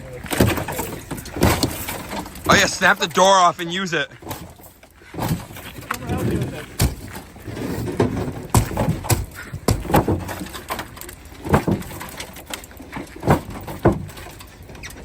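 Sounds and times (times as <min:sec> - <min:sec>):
metal bangs on truck body: 0:00.3 - 0:02.9, 0:06.8 - 0:10.4.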